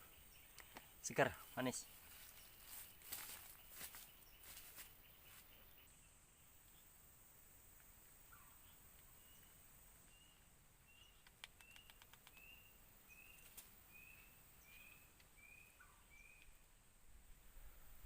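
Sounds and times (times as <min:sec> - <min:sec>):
faint high bird call notes: 0:08.3 - 0:16.6.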